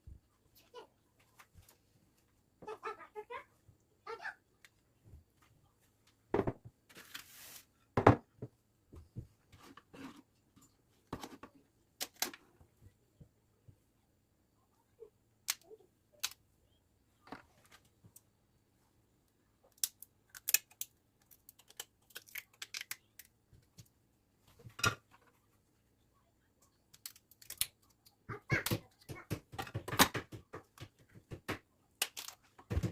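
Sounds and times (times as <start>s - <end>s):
clicks of small objects handled: 19.6s - 23.9s, 26.7s - 28.2s.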